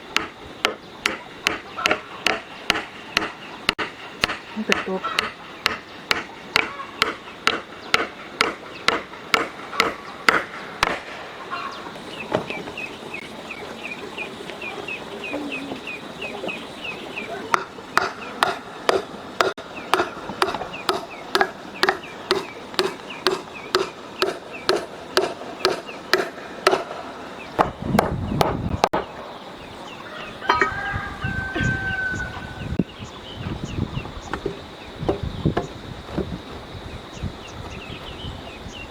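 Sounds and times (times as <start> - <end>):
steady chopping: 0.1 - 11.2, 17.5 - 29.0.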